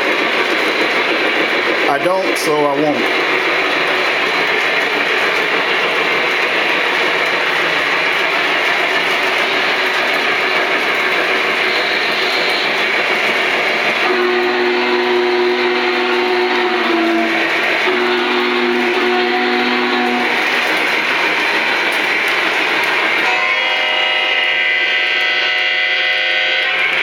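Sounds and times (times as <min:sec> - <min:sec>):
model train wheels and motor: 0:00.0 - 0:27.0
train horn chord: 0:11.6 - 0:12.8, 0:14.0 - 0:21.0, 0:23.2 - 0:27.0.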